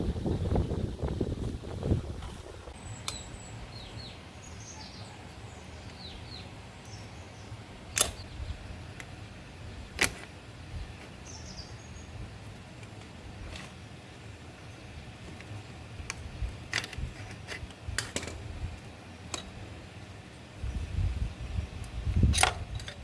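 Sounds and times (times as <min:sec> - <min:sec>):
low steady hum: 0:00.0 - 0:23.0
small birds chirping: 0:00.1 - 0:17.9.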